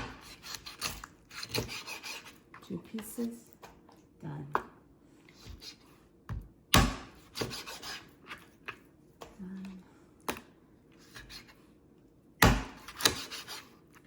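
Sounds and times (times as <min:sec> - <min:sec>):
knife slicing meat: 0:00.0 - 0:02.4, 0:06.9 - 0:08.5, 0:12.6 - 0:14.0.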